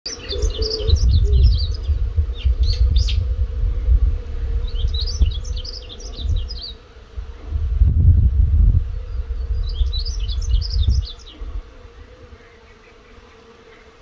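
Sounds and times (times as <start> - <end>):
small birds chirping: 0.1 - 3.3, 4.5 - 6.9, 8.8 - 14.0
faint hum: 0.1 - 14.0
low rumble: 0.8 - 6.5, 7.4 - 11.6.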